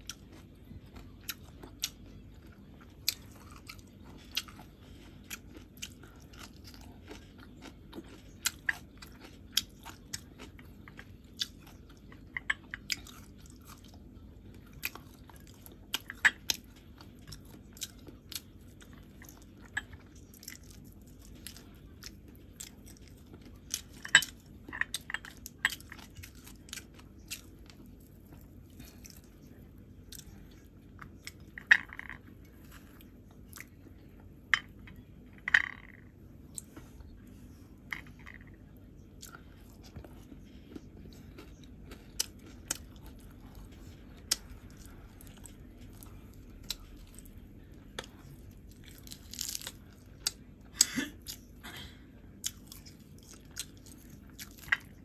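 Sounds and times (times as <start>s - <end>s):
person chewing wetly: 0.0s - 51.6s, 52.3s - 55.0s.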